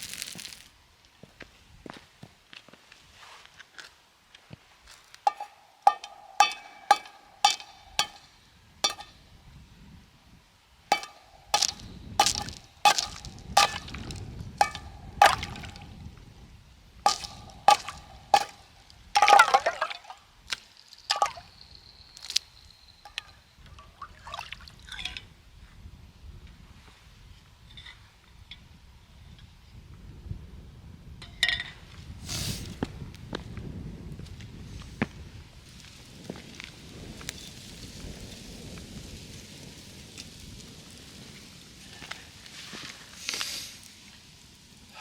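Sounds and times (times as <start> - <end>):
metallic clinks and taps: 5.3 - 9.2.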